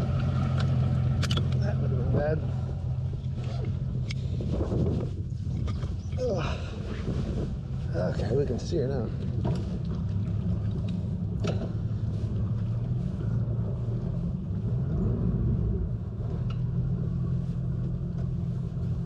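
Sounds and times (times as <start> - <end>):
outboard motor humming: 0.0 - 19.0.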